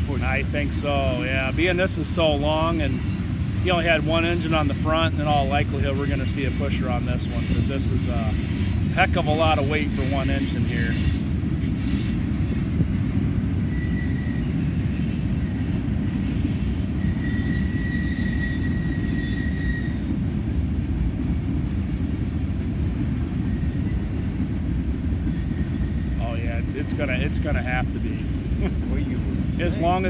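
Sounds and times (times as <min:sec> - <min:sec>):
train wheels rumbling on rail: 0:00.0 - 0:30.0
high wheel squeal: 0:00.1 - 0:20.1, 0:23.4 - 0:30.0.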